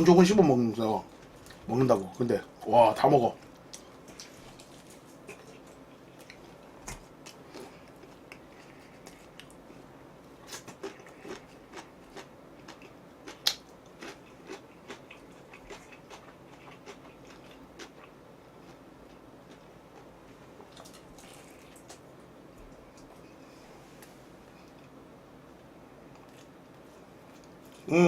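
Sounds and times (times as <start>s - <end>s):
chewing crunchy fried chicken: 3.3s - 23.2s, 26.0s - 27.9s.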